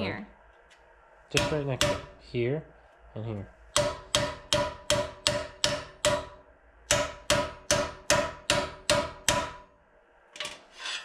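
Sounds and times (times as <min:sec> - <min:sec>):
hammer ringing on steel: 0:01.4 - 0:02.2, 0:03.8 - 0:09.6.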